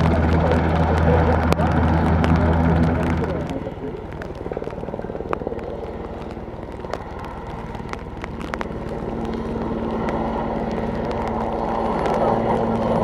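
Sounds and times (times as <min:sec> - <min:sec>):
helicopter rotor beating: 0:00.0 - 0:13.0
turbine noise: 0:00.0 - 0:13.0.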